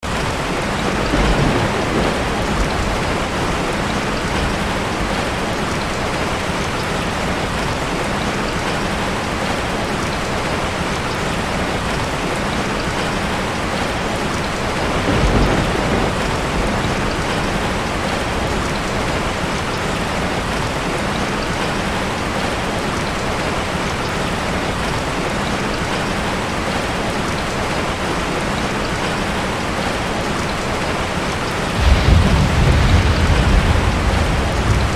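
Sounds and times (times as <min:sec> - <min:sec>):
heavy rain falling: 0:00.0 - 0:34.9
thunder rumbling: 0:00.2 - 0:06.0, 0:14.6 - 0:19.6, 0:31.7 - 0:34.9.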